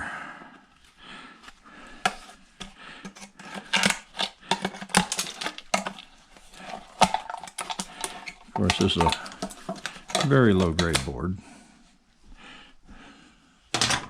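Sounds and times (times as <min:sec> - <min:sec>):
metal parts clicking and clattering: 0:03.5 - 0:11.0.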